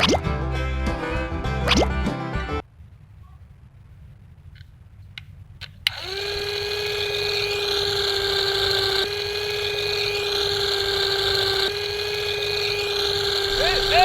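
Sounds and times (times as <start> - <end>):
small electric motor whine: 5.8 - 14.0.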